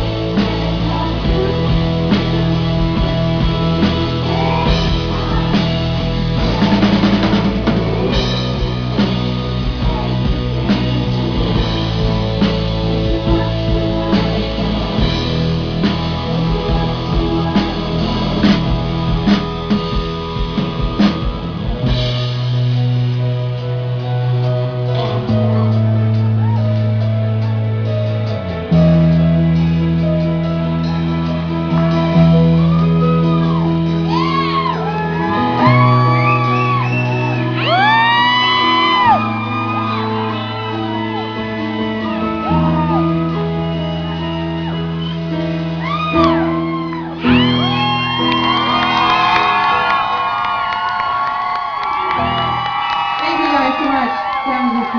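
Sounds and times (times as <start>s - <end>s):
live band playing: 0.0s - 54.9s
audience whooping and shouting: 2.9s - 9.1s, 25.0s - 27.6s, 31.7s - 54.9s.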